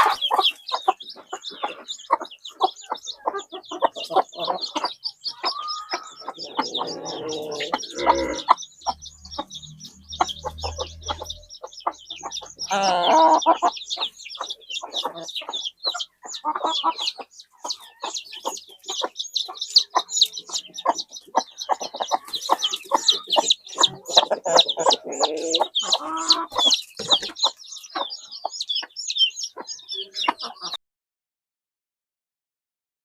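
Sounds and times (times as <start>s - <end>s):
rapid high chirping: 0.0s - 30.6s
chickens clucking: 0.0s - 30.8s
low rumble: 7.8s - 12.4s.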